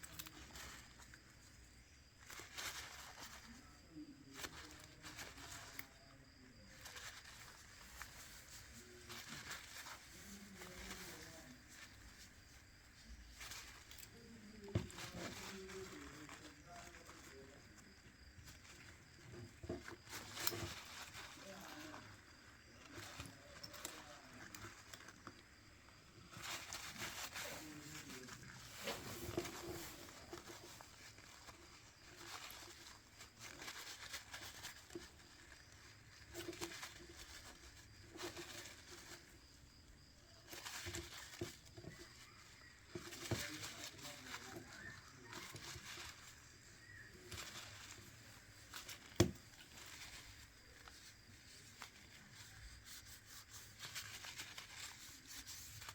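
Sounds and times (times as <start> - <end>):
hands handling a smartphone: 47.0 - 50.2.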